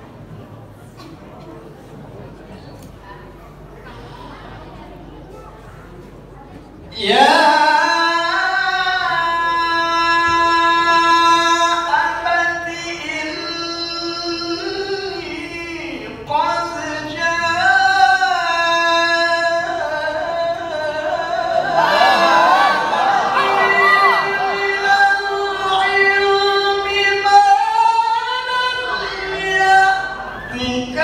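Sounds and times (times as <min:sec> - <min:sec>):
man reciting in melismatic chant: 0:06.9 - 0:31.0.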